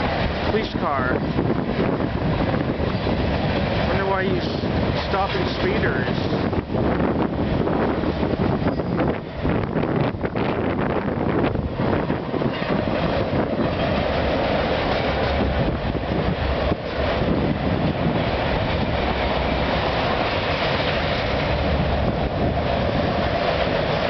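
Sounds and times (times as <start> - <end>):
steel wheels running on rails: 0.0 - 24.0.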